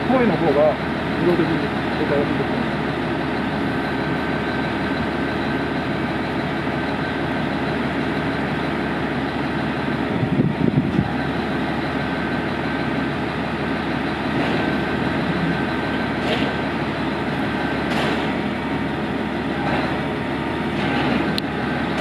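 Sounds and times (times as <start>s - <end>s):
vehicle engine running: 0.0s - 22.0s
plow clunks: 13.7s - 22.0s.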